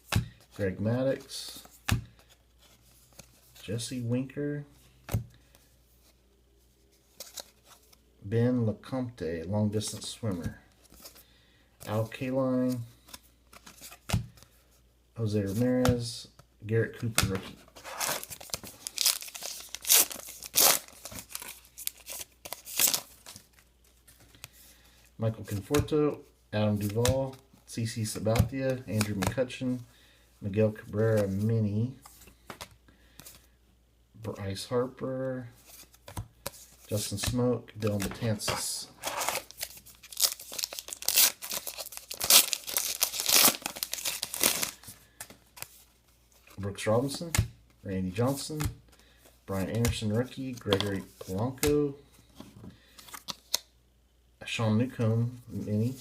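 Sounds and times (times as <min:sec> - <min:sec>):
wrapper tearing and crinkling: 0:17.9 - 0:23.4, 0:39.0 - 0:44.8.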